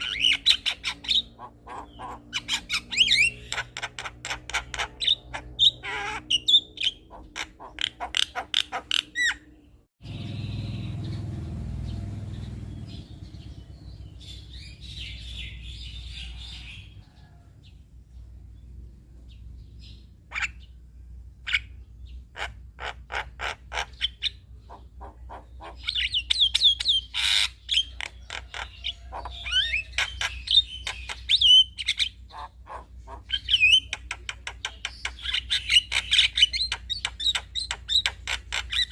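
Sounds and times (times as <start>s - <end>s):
myna bird singing: 0.0s - 38.9s.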